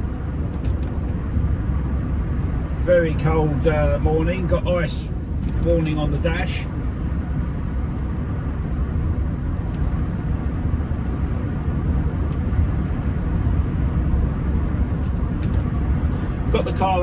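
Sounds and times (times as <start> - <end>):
car interior road rumble: 0.0 - 17.0.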